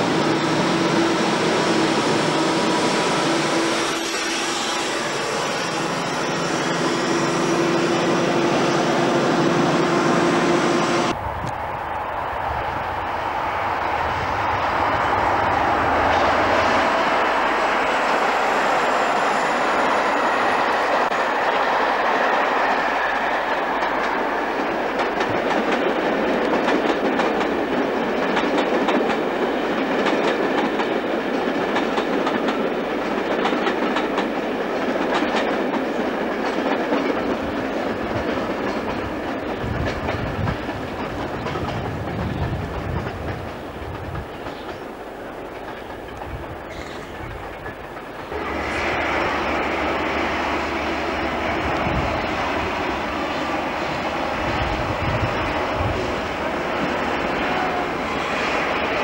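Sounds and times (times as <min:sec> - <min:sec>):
wheels clacking over rail joints: 0:19.1 - 0:48.8.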